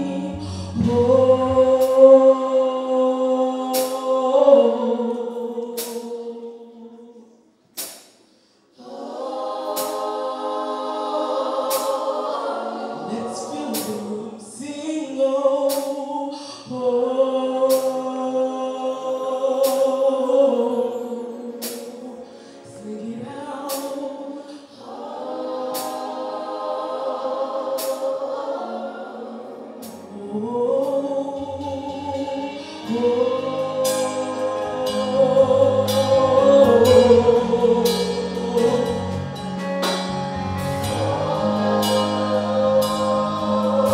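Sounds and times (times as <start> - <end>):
low bass notes: 0.0 - 2.4, 30.2 - 43.9
gospel choir singing: 0.0 - 43.9.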